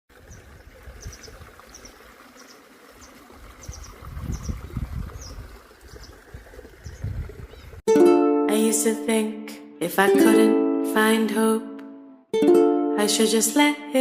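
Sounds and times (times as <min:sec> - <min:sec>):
bird chirping: 0:01.0 - 0:04.6, 0:06.8 - 0:07.8
low wind rumble on microphone: 0:03.4 - 0:07.8.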